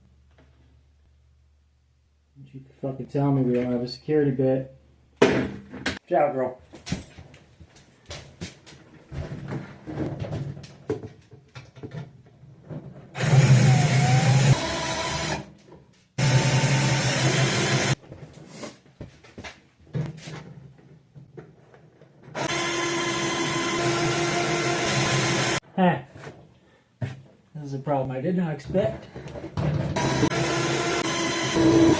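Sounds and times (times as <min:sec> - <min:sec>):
tool handling clicks and knocks: 0:08.1 - 0:13.1
power drill running: 0:13.2 - 0:15.5, 0:16.2 - 0:18.0, 0:22.4 - 0:25.6, 0:30.0 - 0:31.9.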